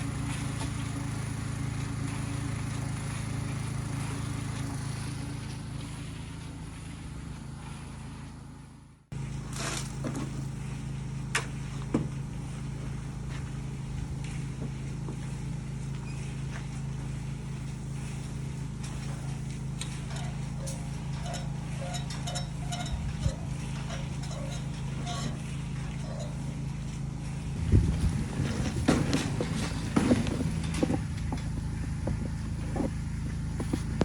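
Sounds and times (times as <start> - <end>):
small engine humming: 0.0 - 8.9, 26.3 - 34.0
sharp knocks and scrapes: 27.6 - 34.0.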